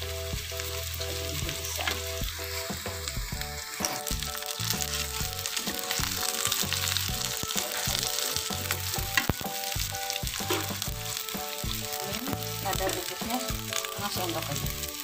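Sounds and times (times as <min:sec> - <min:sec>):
vegetables sizzling in oil: 0:00.0 - 0:15.0
metal spatula scraping pan: 0:10.4 - 0:11.0.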